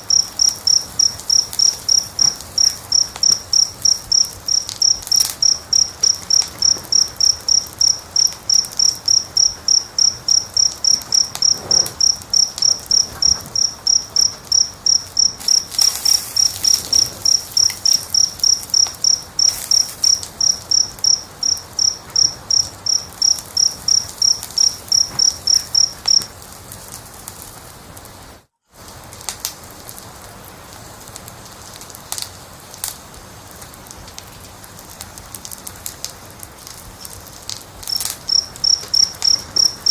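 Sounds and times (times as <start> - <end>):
cricket chirping: 0.0 - 26.3, 37.8 - 39.9
wood fire crackling: 0.0 - 39.9.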